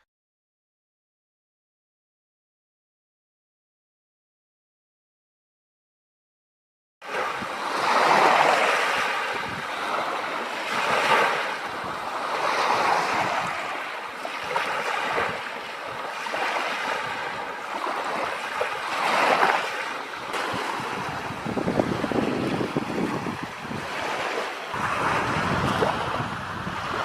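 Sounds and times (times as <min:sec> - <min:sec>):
small waves washing ashore: 0:07.0 - 0:27.0
wind buffeting microphone: 0:07.1 - 0:27.0.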